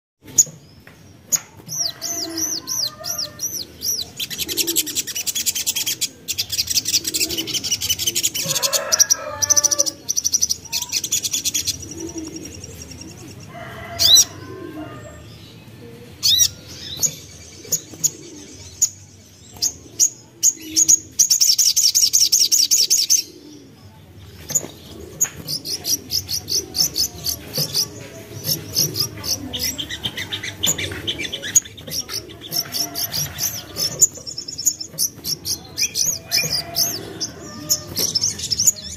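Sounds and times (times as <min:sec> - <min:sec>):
low cooing notes: 0:02.1 - 0:06.2, 0:11.6 - 0:18.7.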